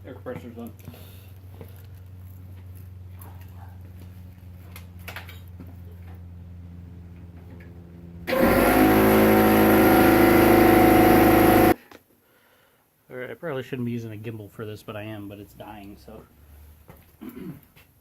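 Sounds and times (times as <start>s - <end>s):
air compressor humming: 8.3s - 11.8s
pneumatic air saw buzzing: 8.3s - 11.8s.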